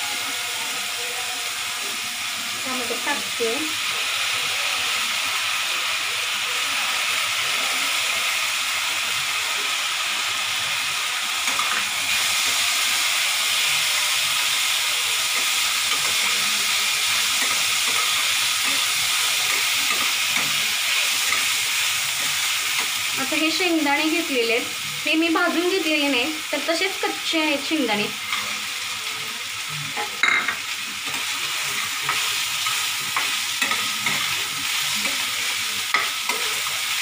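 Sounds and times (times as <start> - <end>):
food frying in hot oil: 0.0 - 37.0
metal spatula stirring: 31.0 - 35.3.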